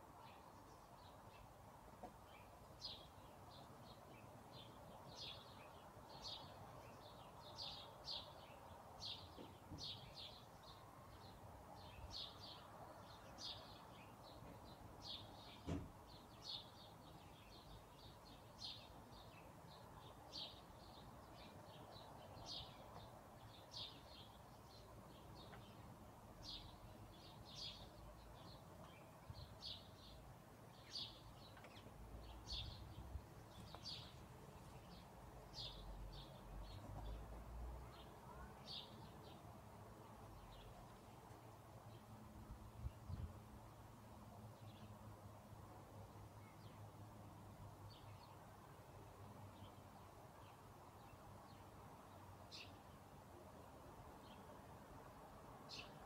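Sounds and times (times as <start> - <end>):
faint steady hiss: 0.0 - 56.0
birds chirping: 0.2 - 37.3.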